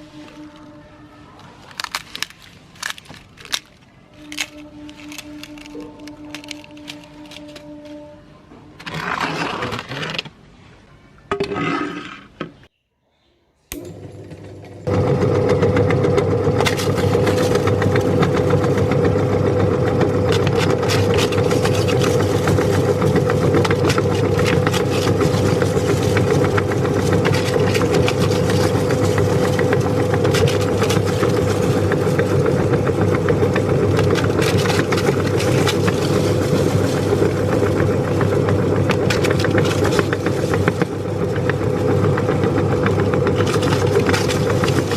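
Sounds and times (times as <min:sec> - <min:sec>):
crisp shells cracking: 0:01.4 - 0:08.0, 0:16.6 - 0:44.9
meat grinder motor hum: 0:13.7 - 0:44.9.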